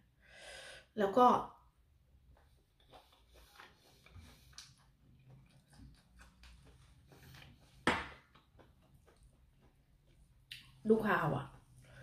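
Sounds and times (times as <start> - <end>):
person chewing wetly: 2.1 - 10.8.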